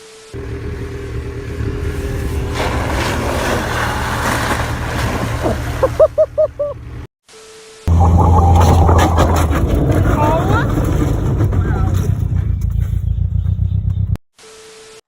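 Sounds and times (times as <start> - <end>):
vehicle engine running: 0.3 - 7.1, 7.9 - 14.2
rising and falling pitched calls: 5.4 - 6.8, 7.9 - 10.8
rushing noise: 7.9 - 12.4.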